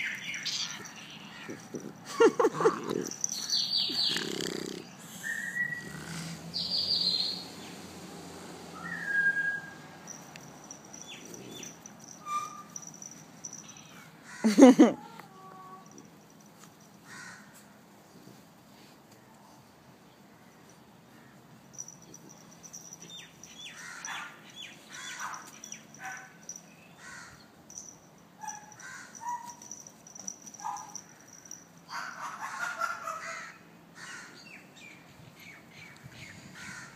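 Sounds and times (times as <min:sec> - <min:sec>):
birds calling: 0:00.0 - 0:07.8, 0:10.6 - 0:14.6, 0:20.4 - 0:36.9
harsh bird calls: 0:03.3 - 0:07.5, 0:23.1 - 0:25.9.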